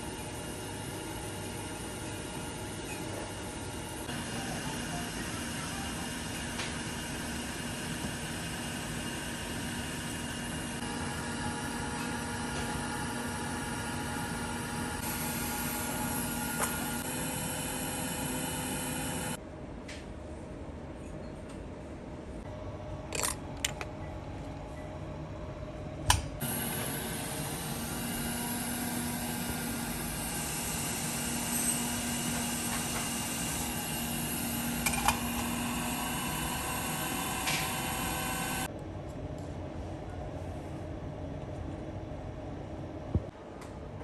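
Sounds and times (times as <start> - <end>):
electric tool hissing whir: 9.1 - 19.4, 26.4 - 38.7.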